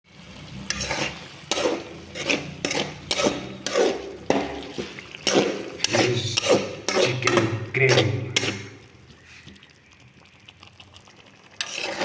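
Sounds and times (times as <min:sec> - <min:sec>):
utensil scraping a cooking pot: 0:00.6 - 0:09.6, 0:11.4 - 0:12.0.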